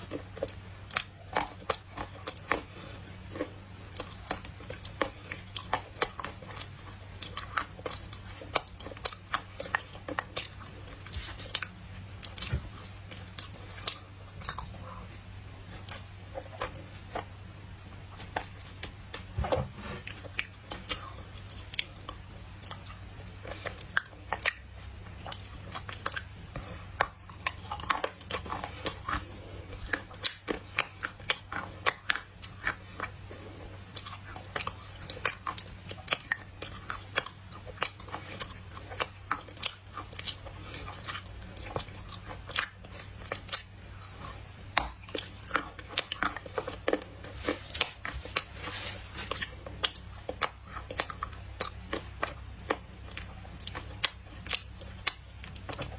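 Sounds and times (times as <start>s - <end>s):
biting and chewing dry clay: 0.0s - 55.9s
low steady hum: 0.0s - 55.9s.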